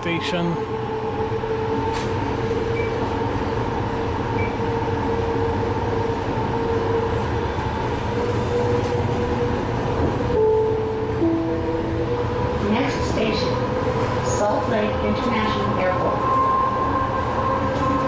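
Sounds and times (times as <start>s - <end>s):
train wheels rumbling on track: 0.0s - 18.0s
sustained tone: 10.3s - 13.7s.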